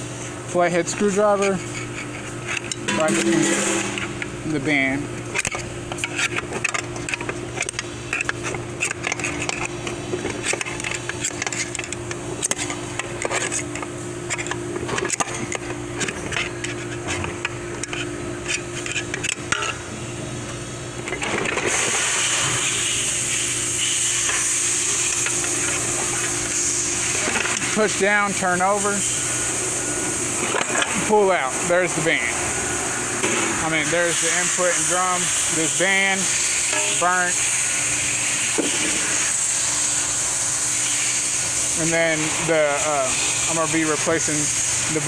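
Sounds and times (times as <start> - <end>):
screwdriver scraping metal: 1.1 - 4.2, 5.4 - 13.6
low hum: 2.6 - 16.4.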